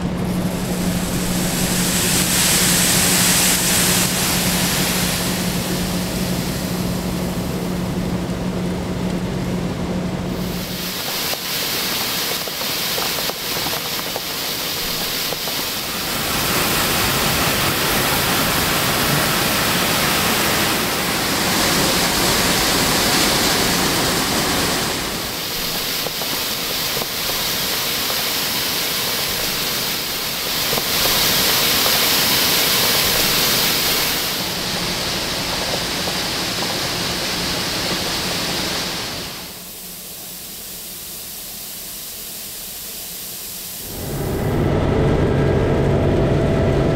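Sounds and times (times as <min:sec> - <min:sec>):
harvester rushing noise: 0:00.0 - 0:09.4
faint low engine hum: 0:00.0 - 0:40.6.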